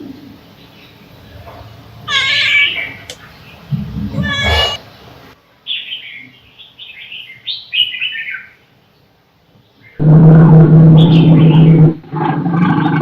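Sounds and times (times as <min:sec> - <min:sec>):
small bird chirping: 0:00.6 - 0:05.1.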